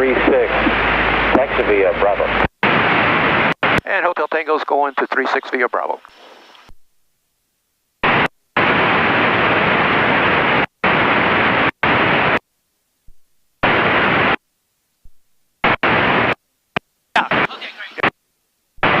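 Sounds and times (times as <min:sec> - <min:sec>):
radio static bursts: 0:00.0 - 0:06.7, 0:08.0 - 0:12.4, 0:13.6 - 0:14.4, 0:15.0 - 0:16.4, 0:17.2 - 0:18.2, 0:18.8 - 0:19.0.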